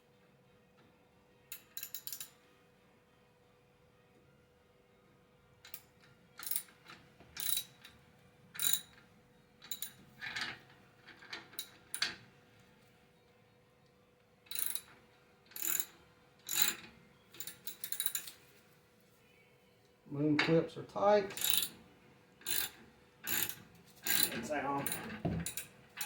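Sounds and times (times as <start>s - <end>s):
ratchet clicking: 1.5s - 2.3s, 7.4s - 7.7s, 8.6s - 8.9s, 14.5s - 14.9s, 15.6s - 15.9s, 16.5s - 16.8s, 17.4s - 18.4s, 21.4s - 21.8s, 22.4s - 25.7s.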